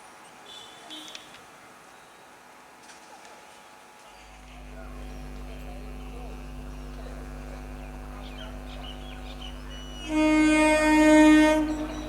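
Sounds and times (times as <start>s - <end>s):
faint birds chirping: 4.1s - 12.0s
steady low hum: 4.2s - 12.0s
train horn blare: 4.6s - 12.0s.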